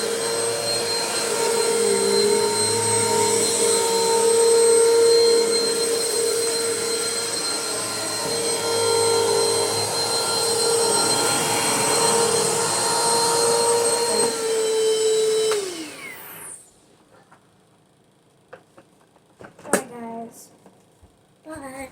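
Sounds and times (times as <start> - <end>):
vacuum cleaner motor whining: 0.0 - 16.8.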